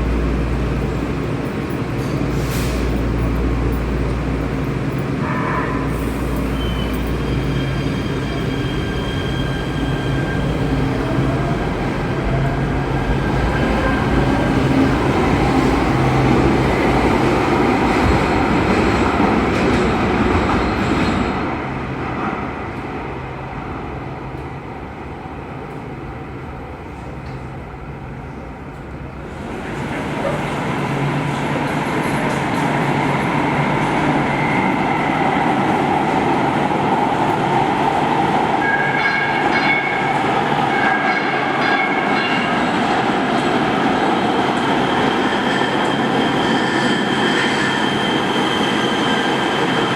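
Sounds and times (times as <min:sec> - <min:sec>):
underground train running: 0:00.0 - 0:49.9.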